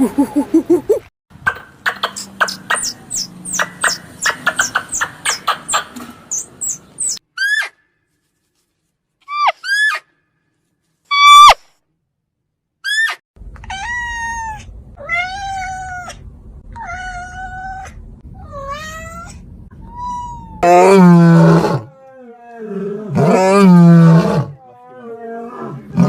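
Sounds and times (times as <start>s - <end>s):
cat meowing: 13.6s - 16.2s, 16.8s - 20.6s.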